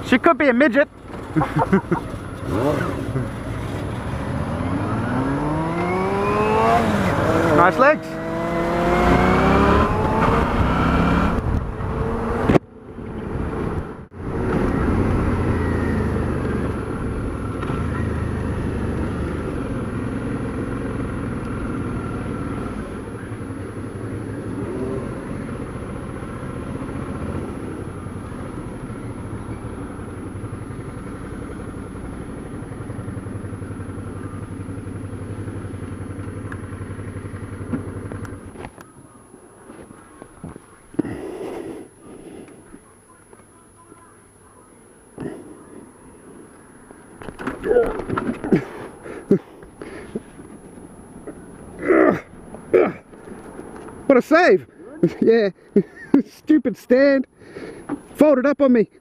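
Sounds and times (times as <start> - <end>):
motorcycle engine accelerating: 0.9 - 43.2.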